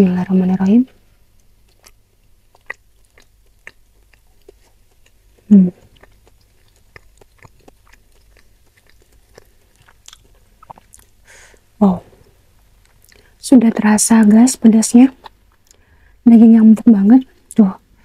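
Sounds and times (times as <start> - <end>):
closed-mouth hum: 0.0 - 18.0
wet mouth clicks chewing: 1.4 - 11.2, 15.2 - 15.8.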